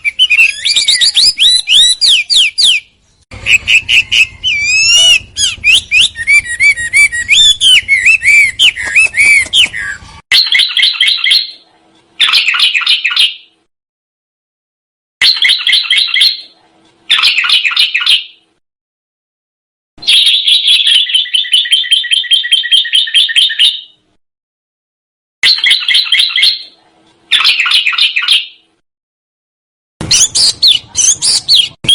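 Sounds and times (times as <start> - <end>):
rapid rolling bird trills: 0.0 - 11.4
songbird whistled phrases: 0.0 - 11.6, 20.0 - 24.0.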